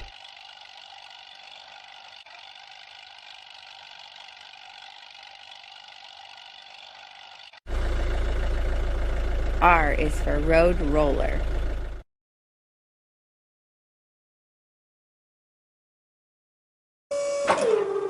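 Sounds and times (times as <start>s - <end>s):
deep vehicle engine idling: 0.0s - 12.0s.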